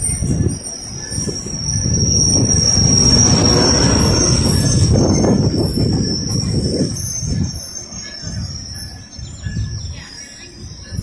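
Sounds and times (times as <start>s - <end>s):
high-pitched wheel squeal: 0.0s - 10.3s
steel wheels rumbling on rails: 0.0s - 11.0s.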